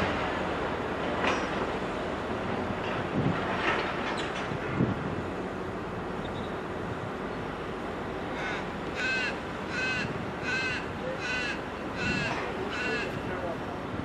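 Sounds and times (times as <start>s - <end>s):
steady background noise: 0.0s - 14.0s
bird calling: 8.3s - 13.2s.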